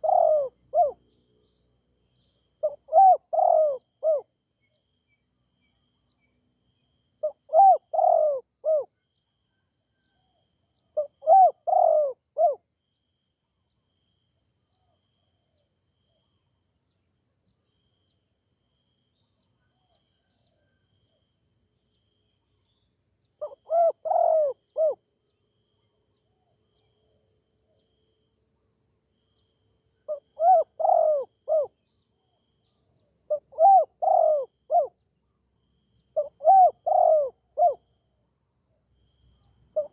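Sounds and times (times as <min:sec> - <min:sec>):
dove cooing: 0:00.0 - 0:01.0, 0:02.6 - 0:04.3, 0:07.2 - 0:08.9, 0:11.0 - 0:12.6, 0:23.4 - 0:25.0, 0:30.1 - 0:31.7, 0:33.3 - 0:35.0, 0:36.2 - 0:37.8.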